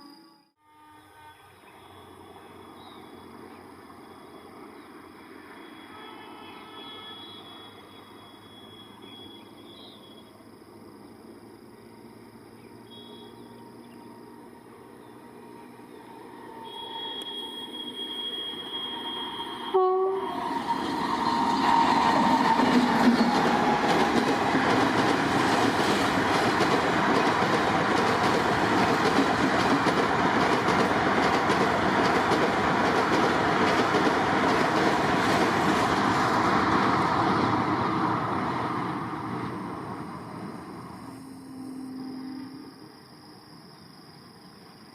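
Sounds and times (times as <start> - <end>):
train horn: 0.0 - 2.6, 5.5 - 9.4, 15.9 - 23.9, 41.0 - 43.0
train rumbling past: 0.1 - 44.9.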